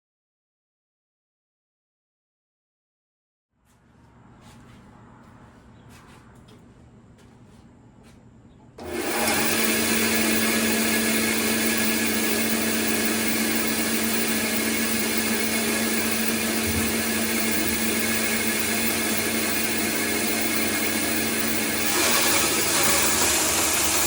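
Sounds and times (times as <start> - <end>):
bandsaw motor humming: 8.8 - 24.0.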